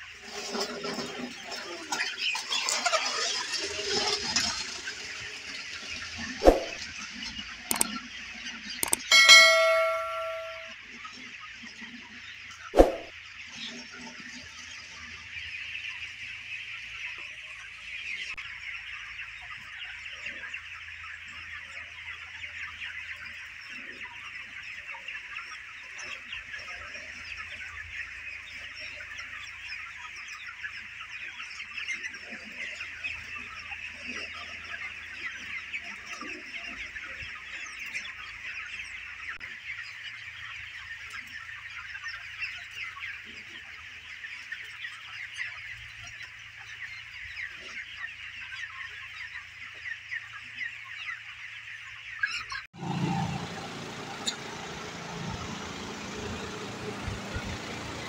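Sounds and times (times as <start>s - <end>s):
chickens chattering: 0.0s - 10.7s, 11.4s - 58.0s
loud metallic clang: 8.8s - 10.7s.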